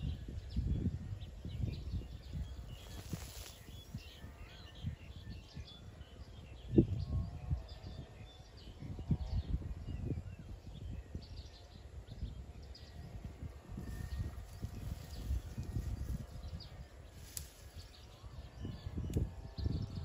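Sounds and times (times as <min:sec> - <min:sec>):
birds chirping and whistling: 0:01.5 - 0:07.0.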